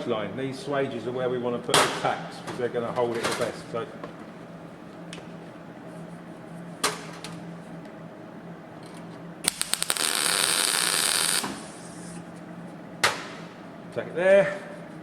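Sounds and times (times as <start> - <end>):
welding arc crackling and hissing: 9.4 - 12.2.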